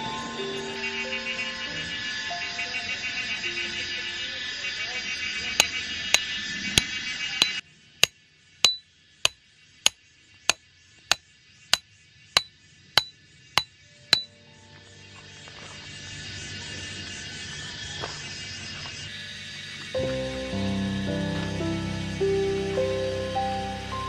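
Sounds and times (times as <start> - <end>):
hammer striking metal: 8.6 - 8.8.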